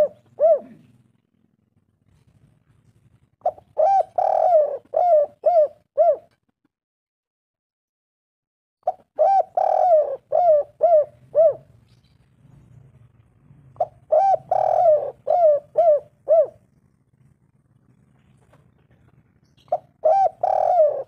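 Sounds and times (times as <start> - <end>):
dove cooing: 0.0 - 1.1, 3.4 - 6.4, 8.8 - 11.8, 13.7 - 21.0.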